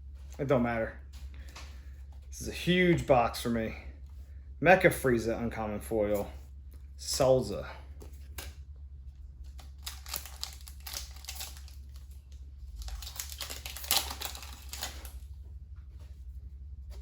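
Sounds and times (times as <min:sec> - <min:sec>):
cards clicking and rustling: 0:09.4 - 0:15.3.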